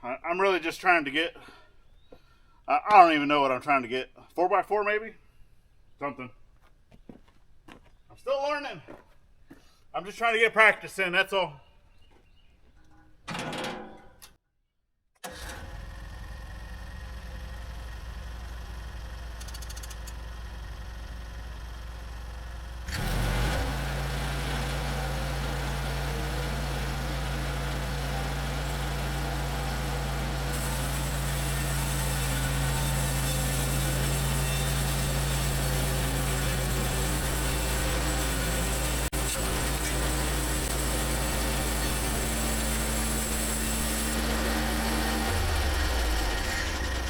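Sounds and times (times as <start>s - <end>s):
gas engine running: 15.2s - 47.0s
saw blade hissing through log: 23.0s - 46.8s.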